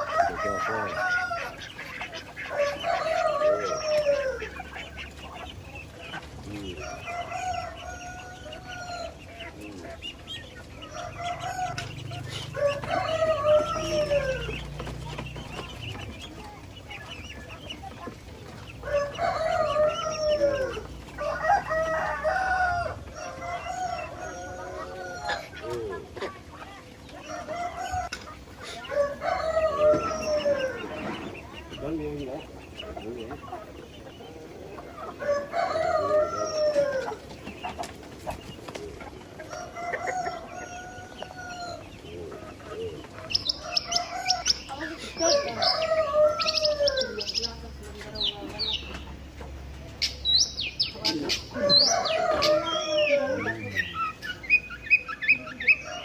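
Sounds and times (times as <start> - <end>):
hens clucking: 0.0 - 56.0
roosters crowing: 0.0 - 56.0
small birds chirping: 0.0 - 56.0.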